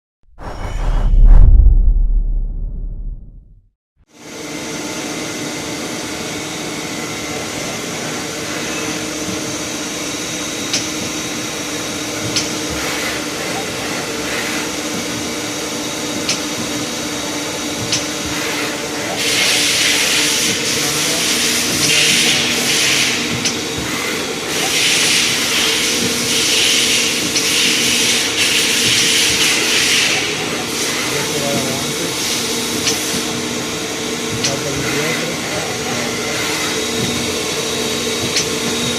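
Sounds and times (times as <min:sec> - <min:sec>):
loud machine hiss: 0:19.2 - 0:23.3, 0:24.5 - 0:33.2.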